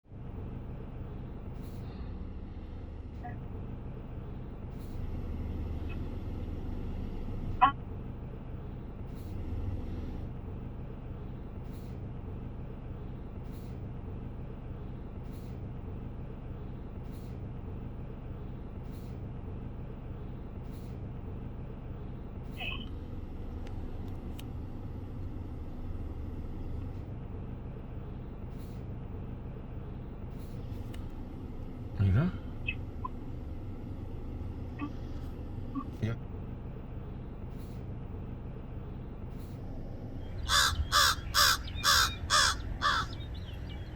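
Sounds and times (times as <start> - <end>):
low background rumble: 0.1 - 43.9
faint bird chirp: 38.7 - 43.9
sharp bird call: 40.3 - 43.9.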